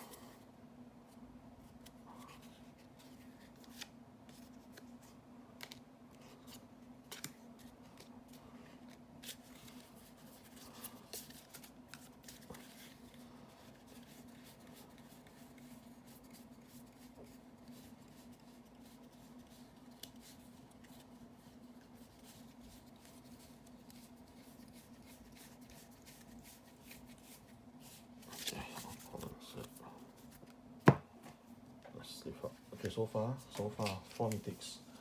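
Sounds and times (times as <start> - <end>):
cards clicking and snapping: 5.6 - 5.8, 7.1 - 8.1.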